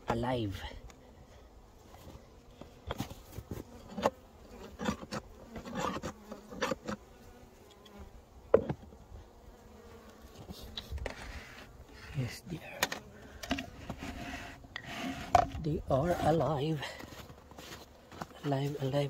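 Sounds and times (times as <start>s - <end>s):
bees buzzing in hive: 0.1s - 19.0s
snow scraping and knocking: 13.6s - 19.0s.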